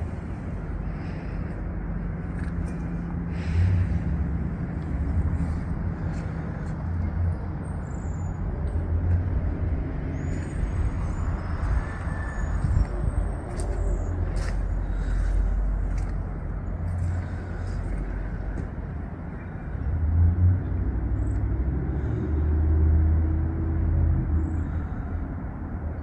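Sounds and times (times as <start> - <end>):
wind rumbling: 0.0 - 19.6
road traffic: 0.0 - 26.0.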